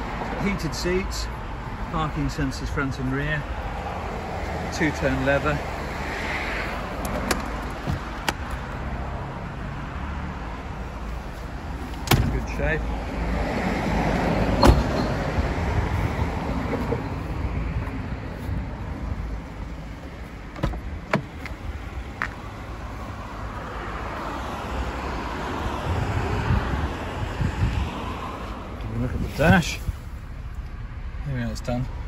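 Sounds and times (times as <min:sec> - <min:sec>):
car engine idling: 0:28.7 - 0:32.0.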